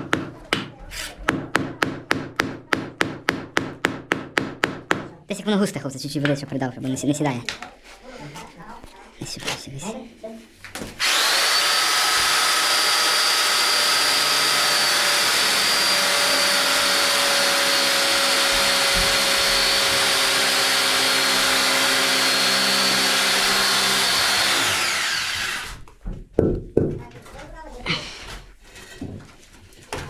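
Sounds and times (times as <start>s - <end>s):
electric drill mixing paddle whine: 11.0s - 25.9s.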